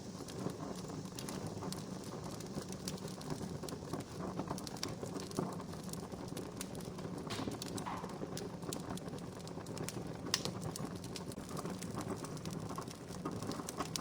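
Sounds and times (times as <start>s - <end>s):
wood fire crackling: 0.0s - 14.0s
sharp pops: 7.2s - 8.6s.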